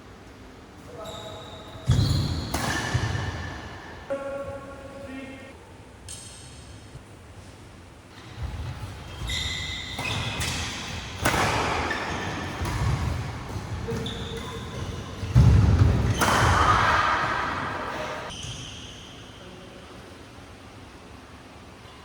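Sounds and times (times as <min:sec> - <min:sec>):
shoes squeaking on floor: 0:00.9 - 0:03.6, 0:08.1 - 0:16.6, 0:18.2 - 0:19.3
racket striking shuttlecock: 0:09.8 - 0:18.3.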